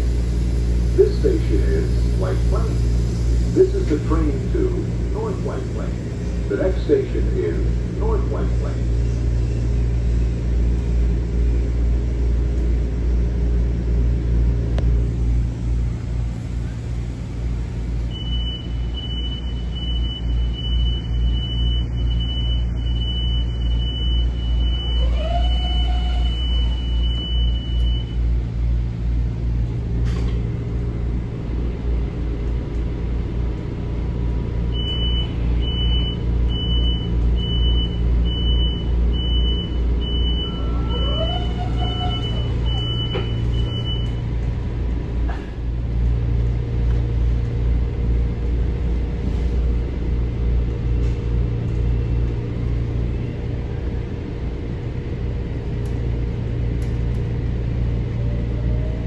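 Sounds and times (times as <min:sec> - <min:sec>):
rising whine: 0:00.0 - 0:33.9, 0:39.6 - 0:45.2
train rumbling: 0:00.0 - 0:59.0
short beeps: 0:34.8 - 0:40.9, 0:41.8 - 0:44.2.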